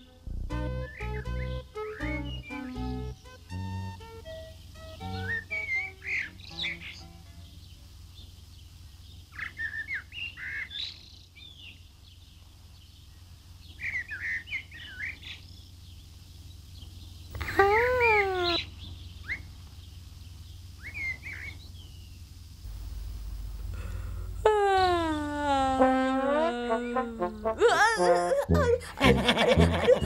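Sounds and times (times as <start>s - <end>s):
rising and falling tone: 0.0s - 6.0s
low hum: 0.0s - 10.4s, 11.0s - 30.0s
small birds chirping: 0.0s - 24.4s.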